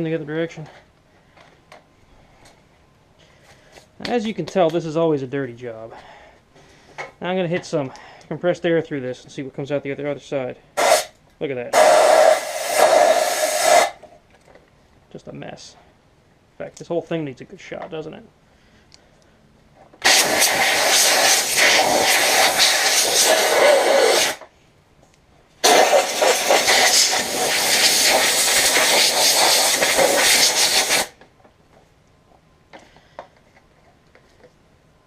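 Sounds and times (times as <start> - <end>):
compressed air blowgun hissing: 10.8 - 11.1, 11.8 - 14.0, 20.0 - 24.5, 25.6 - 31.2.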